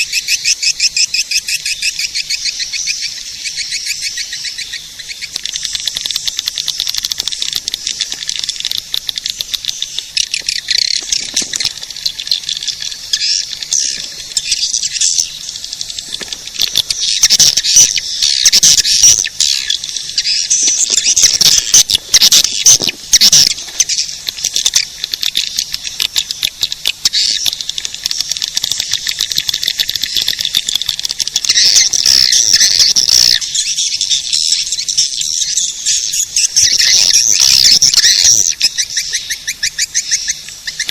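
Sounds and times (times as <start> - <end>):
swiftlet chirps and twitters: 0.0 - 40.9.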